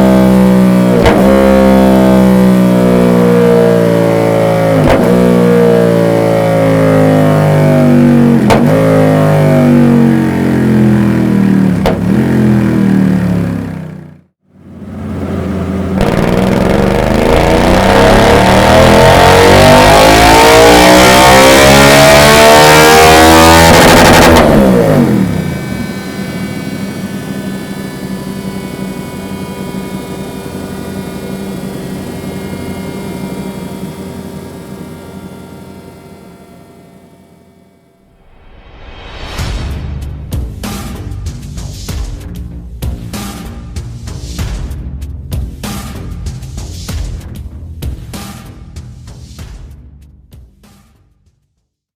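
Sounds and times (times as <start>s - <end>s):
dyno roller winding down: 0.0s - 37.6s
motorcycle engine revving: 0.0s - 38.4s.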